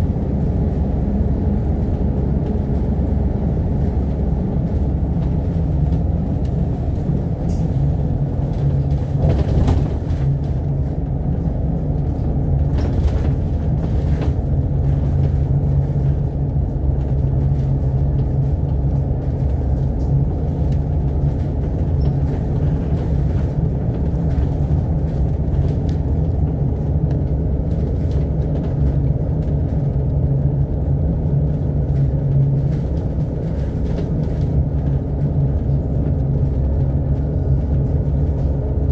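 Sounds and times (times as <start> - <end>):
bus engine and road drone: 0.0 - 38.9.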